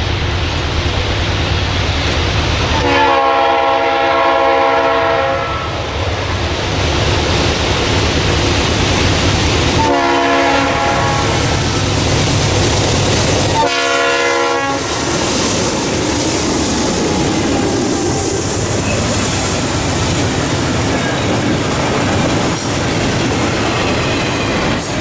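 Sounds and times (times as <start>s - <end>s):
diesel locomotive rumbling past: 0.0s - 25.0s
train air horn blasts: 2.7s - 5.8s, 9.8s - 11.5s, 13.6s - 14.9s.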